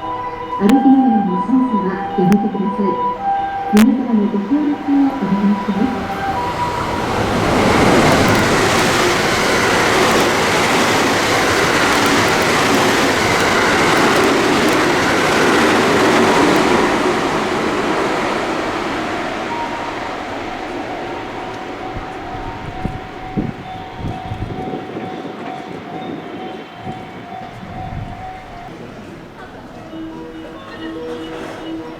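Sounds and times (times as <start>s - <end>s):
train wheels on rails: 0.0s - 31.9s
rushing air: 4.8s - 28.6s.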